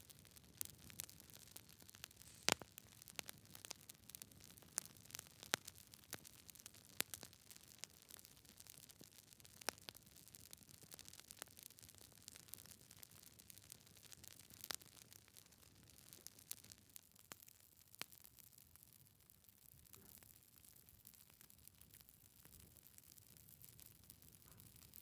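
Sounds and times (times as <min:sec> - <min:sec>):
wood fire crackling and popping: 0:00.0 - 0:18.9.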